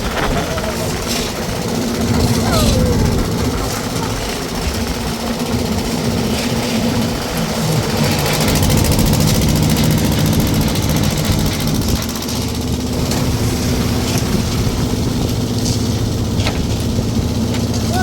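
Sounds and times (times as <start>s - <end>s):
engine running steadily: 0.0s - 18.0s.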